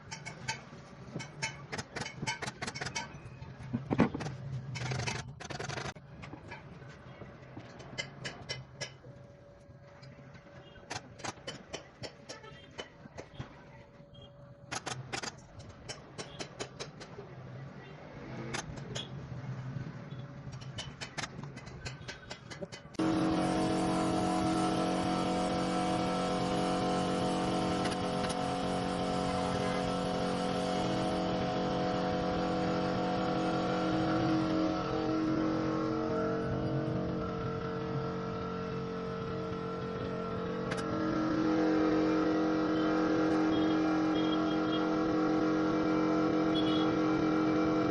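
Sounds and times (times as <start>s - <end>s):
motor humming: 23.0s - 47.9s.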